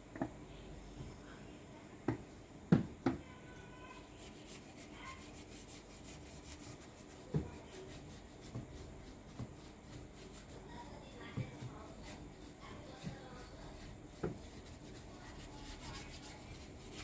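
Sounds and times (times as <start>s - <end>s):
faint rubbing: 3.9s - 17.0s.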